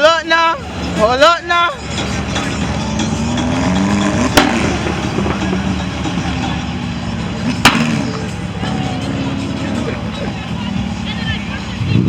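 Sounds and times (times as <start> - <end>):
car engine running loud: 0.0 - 12.0
sharp cracks: 7.5 - 8.4.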